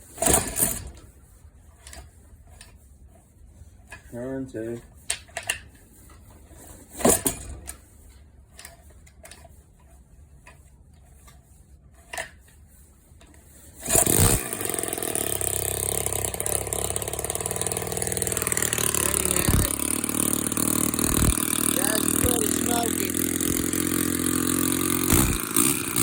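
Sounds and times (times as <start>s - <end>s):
small engine running: 13.8s - 26.0s.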